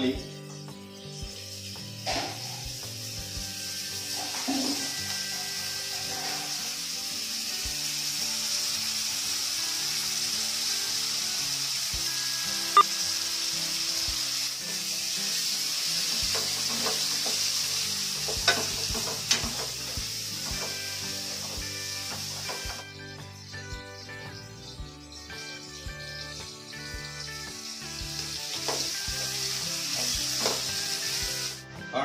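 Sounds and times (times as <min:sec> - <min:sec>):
vegetables sizzling in hot oil: 0:00.7 - 0:31.6.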